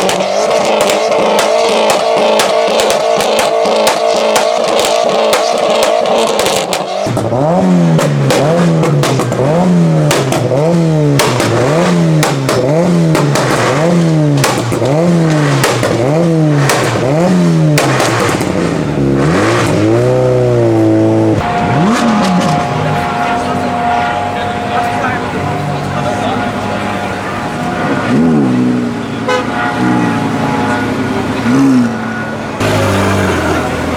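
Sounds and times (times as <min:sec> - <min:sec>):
exhaust crackles and pops: 0:00.0 - 0:23.2
car engine revving: 0:00.0 - 0:33.9.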